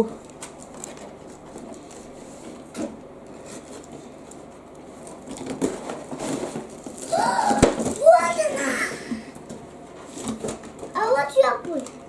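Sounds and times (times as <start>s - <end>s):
cardboard packaging rustling: 3.3s - 9.3s.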